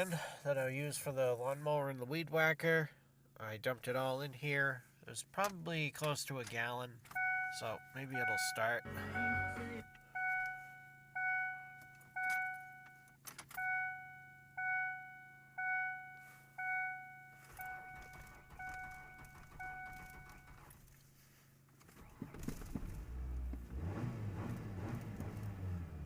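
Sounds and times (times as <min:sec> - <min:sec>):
car dashboard warning chime: 0:07.2 - 0:20.6.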